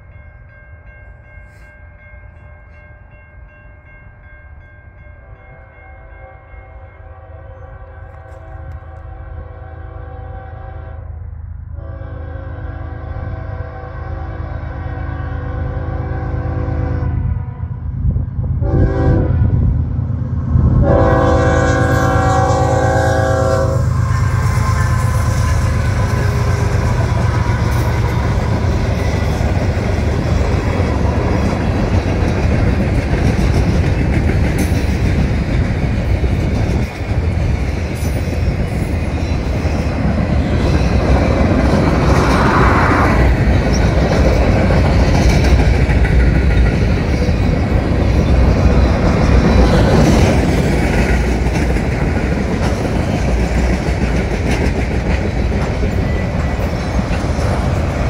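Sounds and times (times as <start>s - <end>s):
locomotive horn: 5.2s - 11.2s, 11.8s - 17.9s, 18.6s - 19.7s, 20.8s - 29.4s
freight cars rumbling past: 17.6s - 58.0s
wheels clacking over rails: 24.3s - 58.0s.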